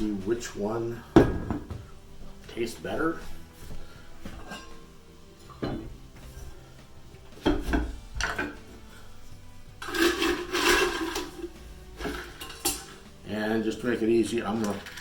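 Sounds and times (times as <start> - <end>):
kitchen items knocking: 1.2 - 2.0, 7.4 - 8.7, 14.5 - 15.0
scraping rub: 9.8 - 13.0.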